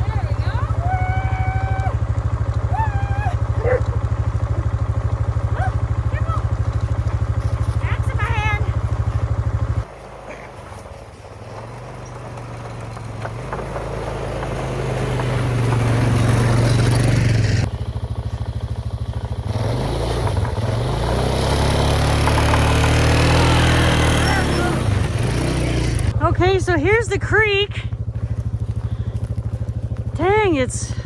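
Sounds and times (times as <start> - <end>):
quad engine running: 0.0 - 31.0.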